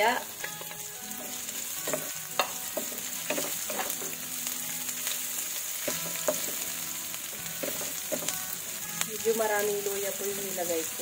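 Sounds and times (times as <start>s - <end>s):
food sizzling in hot oil: 0.0s - 11.0s
spatula knocking and scraping pan: 0.4s - 4.2s, 5.8s - 6.7s, 7.3s - 8.6s.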